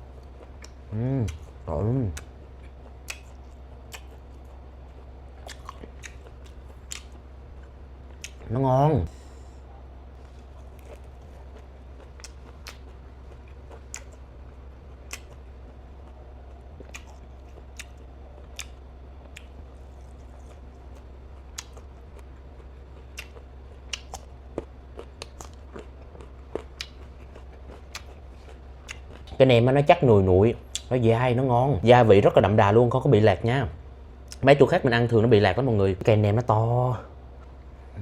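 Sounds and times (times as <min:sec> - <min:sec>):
steady low hum: 0:00.0 - 0:38.0
person chewing wet clicks: 0:00.1 - 0:08.5, 0:10.2 - 0:29.8, 0:30.6 - 0:31.0.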